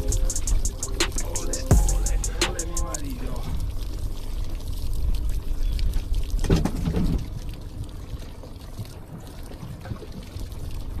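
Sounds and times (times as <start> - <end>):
water pouring and sloshing: 2.9 - 11.0.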